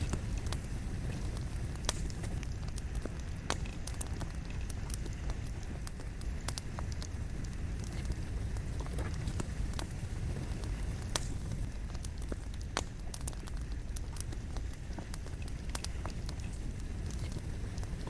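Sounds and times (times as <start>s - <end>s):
burning logs crackling and popping: 0.0s - 18.0s
flame rumbling: 0.0s - 18.0s.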